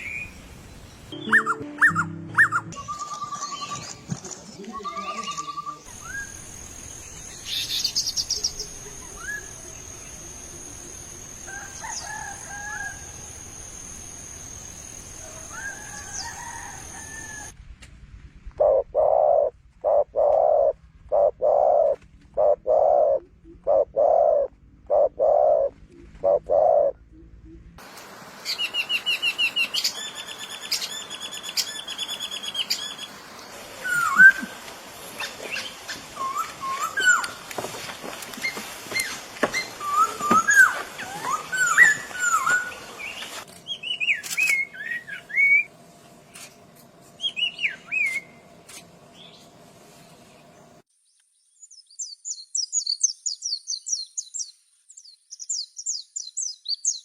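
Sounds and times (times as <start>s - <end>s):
high bird chirps: 1.1s - 4.0s
low bird calls: 18.6s - 27.8s.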